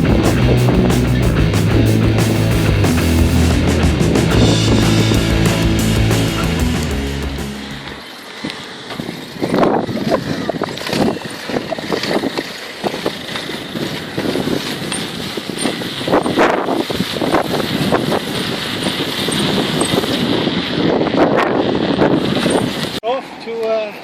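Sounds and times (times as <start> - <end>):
wind rushing over microphone: 0.0 - 8.0, 9.0 - 23.0
road noise: 0.0 - 9.5.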